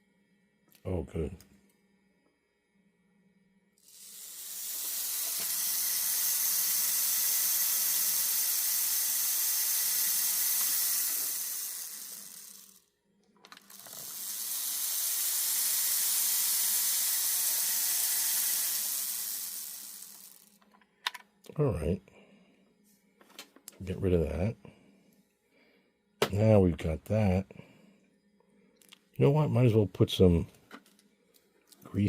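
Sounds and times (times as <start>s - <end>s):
model train motor whirring: 3.8s - 12.9s, 13.5s - 20.6s.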